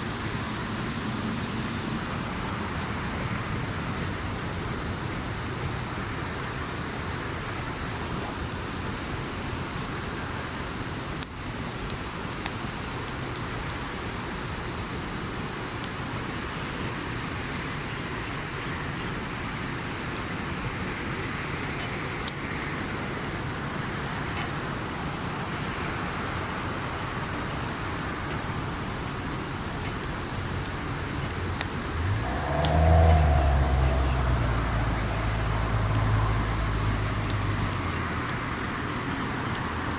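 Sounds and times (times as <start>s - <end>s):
campfire hissing and crackling: 0.0s - 39.9s
low engine hum: 27.8s - 39.9s.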